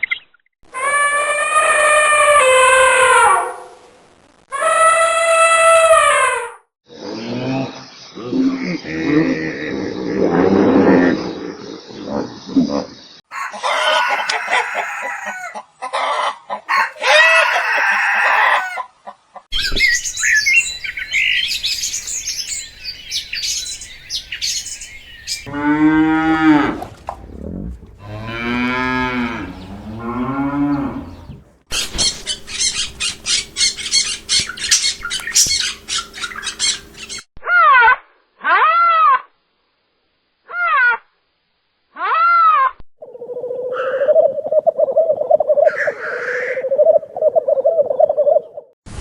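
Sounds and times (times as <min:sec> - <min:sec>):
chickens squawking and clucking: 0:13.3 - 0:37.3, 0:43.1 - 0:48.6
cow mooing: 0:25.4 - 0:31.6.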